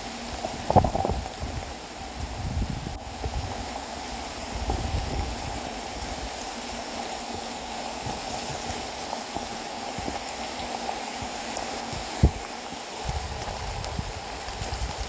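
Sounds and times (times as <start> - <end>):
wind rumble on microphone: 0.0 - 6.8, 11.9 - 15.0
steady rain: 0.0 - 15.0.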